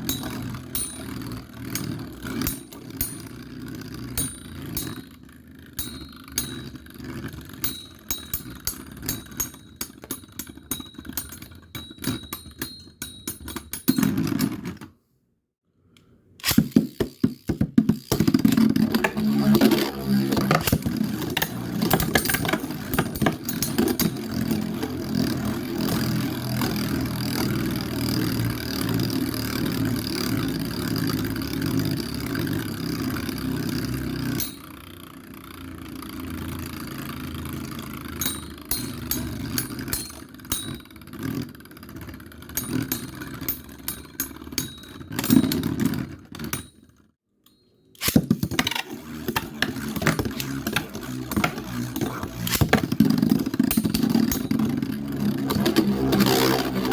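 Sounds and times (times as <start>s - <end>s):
spinning tops whirring: 0.0s - 12.6s, 16.4s - 34.8s, 35.5s - 46.1s, 48.0s - 56.9s
spinning tops clashing clicks: 16.4s - 26.9s, 38.2s - 40.8s.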